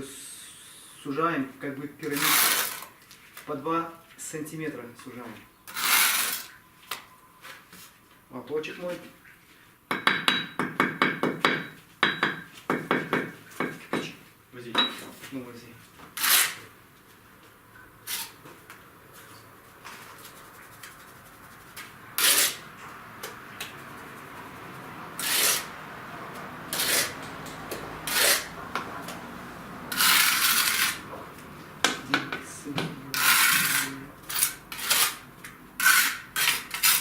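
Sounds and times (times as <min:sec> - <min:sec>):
trowel scraping mortar on brick: 0:02.0 - 0:03.0, 0:05.7 - 0:06.6, 0:16.2 - 0:16.6, 0:18.0 - 0:18.4, 0:21.7 - 0:22.7, 0:25.2 - 0:25.7, 0:26.7 - 0:27.3, 0:28.0 - 0:28.5, 0:29.9 - 0:31.1, 0:33.1 - 0:35.2, 0:35.8 - 0:37.0
trowel knocking on brick: 0:09.9 - 0:14.2.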